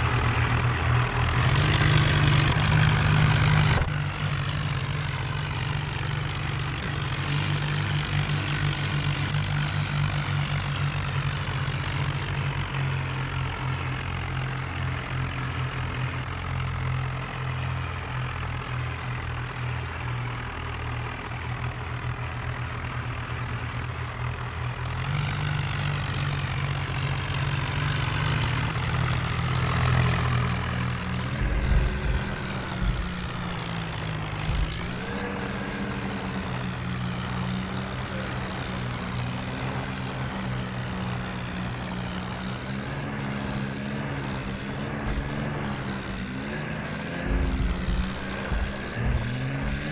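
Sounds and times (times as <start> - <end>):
tractor engine running: 0.0 - 49.9
short knocks: 28.8 - 36.6, 44.0 - 49.9.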